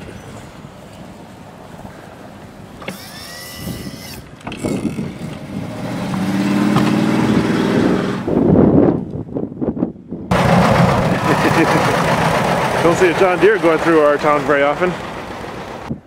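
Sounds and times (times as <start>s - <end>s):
high squeal: 2.9s - 4.3s
diesel engine revving: 2.9s - 8.5s, 10.3s - 16.0s.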